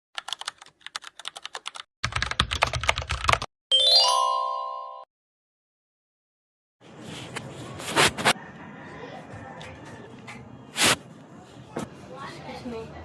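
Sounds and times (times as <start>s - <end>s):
rapid keyboard typing: 0.2s - 3.5s
bright chime: 3.7s - 5.1s.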